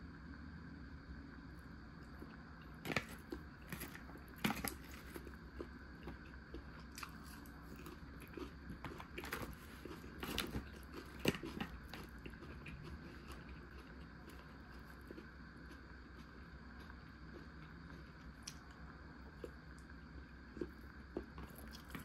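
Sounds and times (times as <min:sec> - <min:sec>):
steady low hum: 0:00.0 - 0:22.0
person chewing crunchy food: 0:02.0 - 0:22.0.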